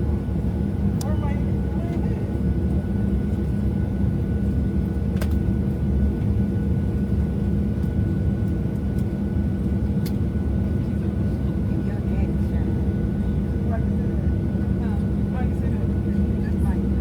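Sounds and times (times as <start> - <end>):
aircraft cabin drone: 0.0 - 17.0.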